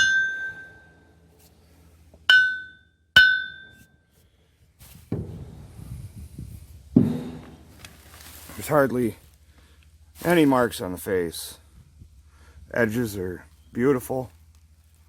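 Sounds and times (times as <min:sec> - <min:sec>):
hammer ringing on anvil: 0:00.0 - 0:01.0, 0:02.3 - 0:03.8
handling and rustling noise: 0:04.2 - 0:11.0, 0:13.5 - 0:15.0.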